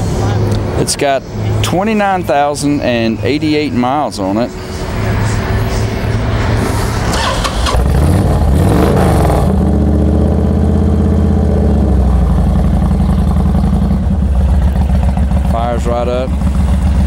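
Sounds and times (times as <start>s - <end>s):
motorcycle engine starting and idling: 7.0s - 17.0s.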